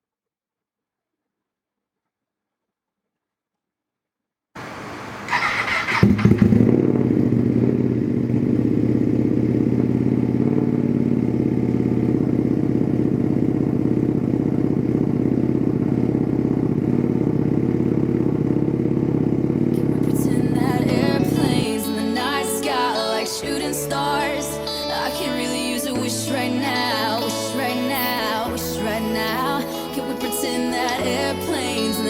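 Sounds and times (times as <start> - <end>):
motorcycle engine idling: 4.6 - 22.0
motorcycle starter cranking: 5.3 - 6.8.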